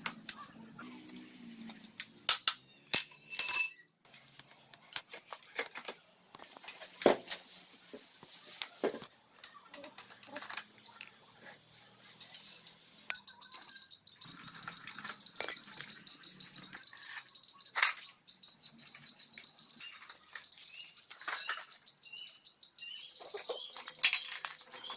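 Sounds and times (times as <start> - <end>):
metal tools clinking on workbench: 1.0 - 4.0, 13.1 - 24.9.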